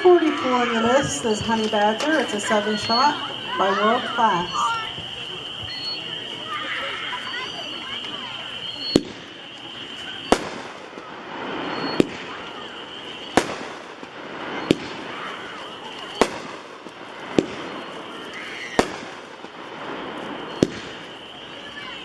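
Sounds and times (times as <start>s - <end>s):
firework shells exploding: 7.3s - 22.0s.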